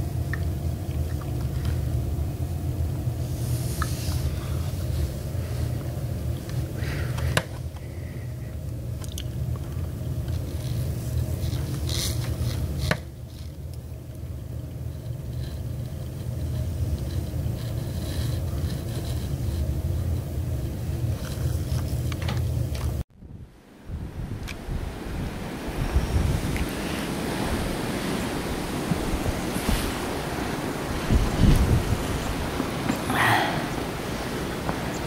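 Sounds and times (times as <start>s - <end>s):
wind buffeting microphone: 23.1s - 35.0s.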